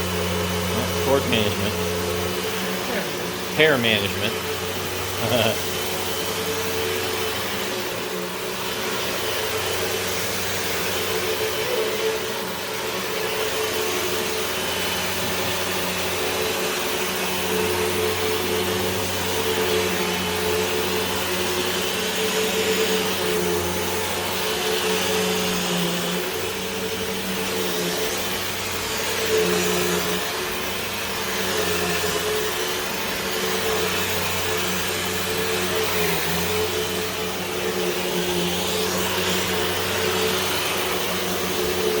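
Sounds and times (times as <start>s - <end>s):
vacuum cleaner running: 0.0s - 42.0s.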